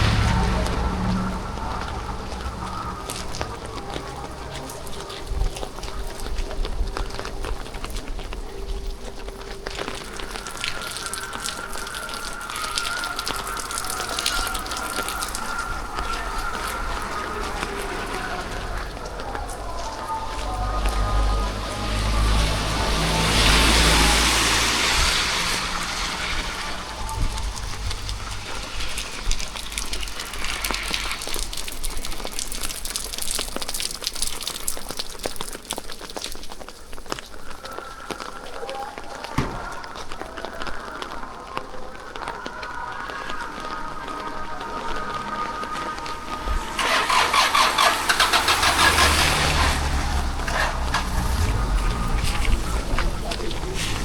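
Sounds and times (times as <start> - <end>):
low rumble: 0.0 - 6.8, 13.2 - 32.3, 49.6 - 54.0
rain falling: 0.0 - 54.0.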